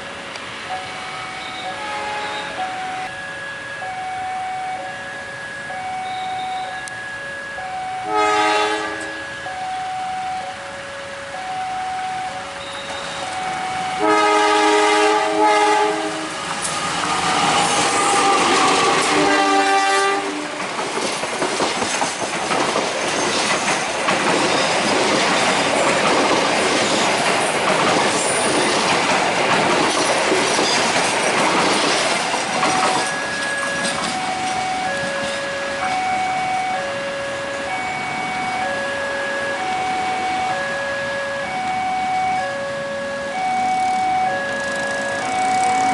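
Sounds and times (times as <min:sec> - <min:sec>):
train rushing noise: 0:00.0 - 0:45.9
train horn blast: 0:01.1 - 0:03.1, 0:08.0 - 0:10.2, 0:13.9 - 0:20.6
level crossing two-tone beeps: 0:01.4 - 0:07.8
wheels clattering over rail joints: 0:16.4 - 0:36.2.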